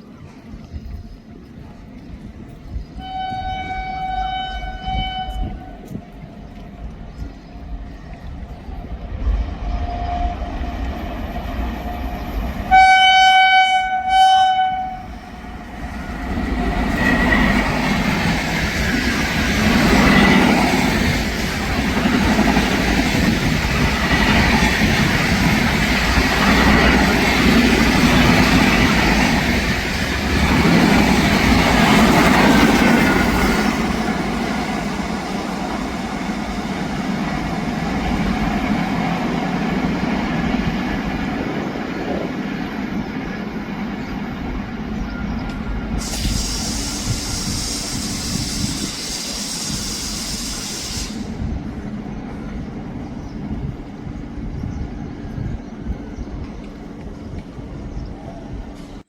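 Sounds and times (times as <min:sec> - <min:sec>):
train horn blasts: 0:03.0 - 0:06.0, 0:12.7 - 0:15.2.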